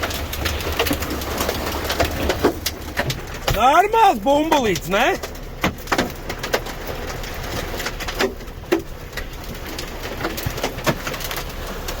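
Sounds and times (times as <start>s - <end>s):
hailstones thudding on car: 0.0s - 12.0s.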